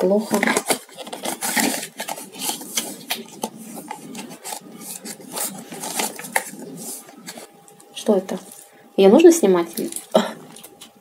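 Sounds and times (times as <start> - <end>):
hands rubbing and scraping: 0.1 - 7.8.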